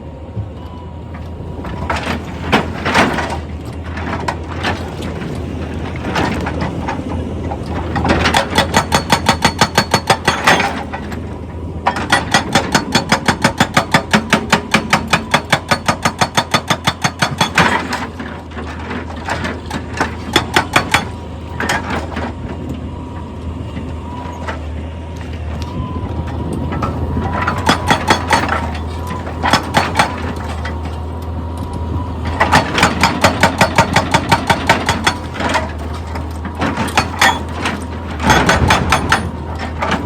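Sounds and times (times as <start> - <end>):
diesel engine humming: 0.0 - 40.0
hydraulic rock breaker hammering: 7.7 - 11.2, 11.8 - 22.4, 26.4 - 31.0, 32.2 - 40.0.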